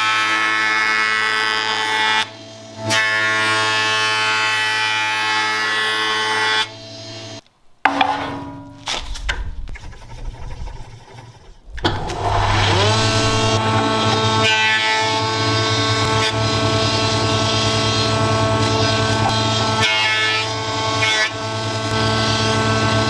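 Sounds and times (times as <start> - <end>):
power tool motor running: 11.7 - 23.0.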